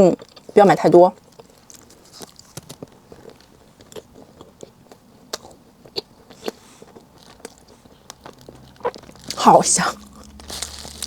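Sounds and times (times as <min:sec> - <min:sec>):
person chewing with mouth clicks: 0:01.2 - 0:11.0.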